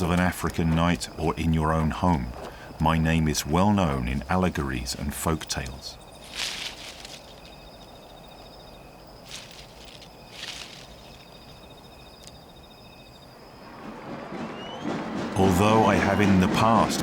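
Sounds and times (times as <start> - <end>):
insects trilling: 0.0 - 14.8
soft rustles: 5.6 - 8.5, 9.2 - 12.4.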